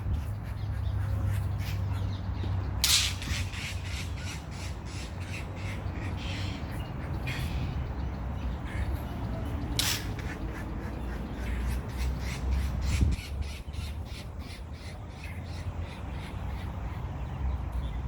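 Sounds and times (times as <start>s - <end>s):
blue jay squawking calls: 3.1s - 7.8s.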